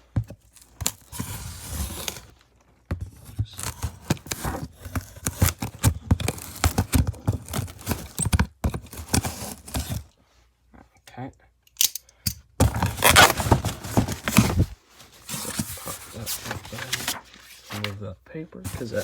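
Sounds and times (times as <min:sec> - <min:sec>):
cardboard and packing rustling: 0:00.0 - 0:10.1, 0:12.6 - 0:19.0
cardboard ripping: 0:00.5 - 0:02.4, 0:03.1 - 0:10.0, 0:12.6 - 0:18.0, 0:18.7 - 0:19.0.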